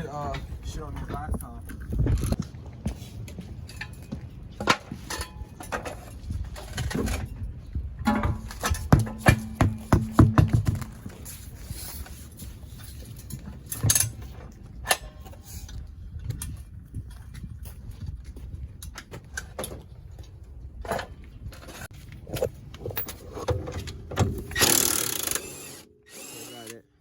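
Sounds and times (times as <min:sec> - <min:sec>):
metal tools clanking on car parts: 0:03.6 - 0:07.4, 0:08.0 - 0:15.8.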